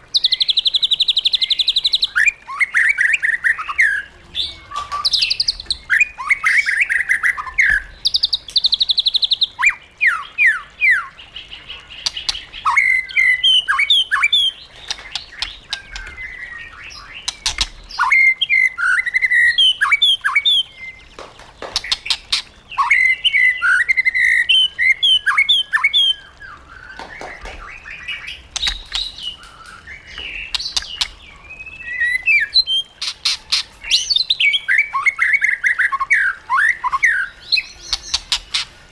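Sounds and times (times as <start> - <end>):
songbird whistling and trilling: 0.1 - 11.3, 11.9 - 21.2, 21.8 - 38.8
bird sharp clicks: 17.2 - 18.1, 28.5 - 31.2.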